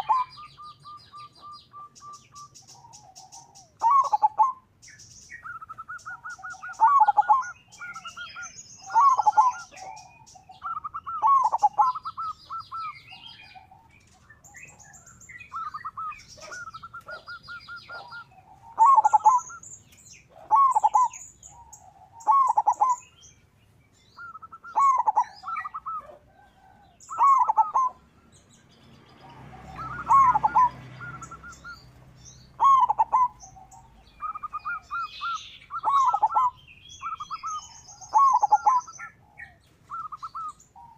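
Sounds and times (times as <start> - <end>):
dove trilled cooing: 0.0 - 23.4, 24.0 - 28.1, 29.0 - 40.9
small birds chirping: 0.0 - 40.9.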